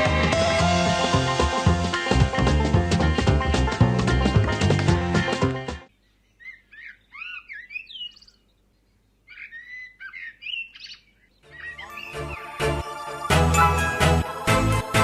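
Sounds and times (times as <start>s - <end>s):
background music: 0.0s - 5.9s, 11.4s - 15.0s
songbird whistling and chirping: 6.0s - 12.6s.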